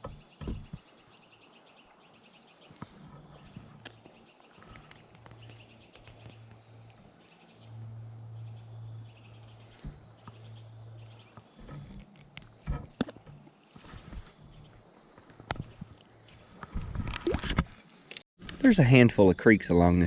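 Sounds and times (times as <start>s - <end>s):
insects chirping faintly: 0.0s - 17.1s
low hum: 3.0s - 14.8s.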